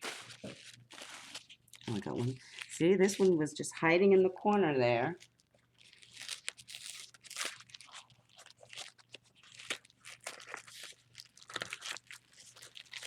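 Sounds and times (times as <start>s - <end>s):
packaging crinkling and rustling: 0.0s - 3.4s, 4.5s - 13.0s.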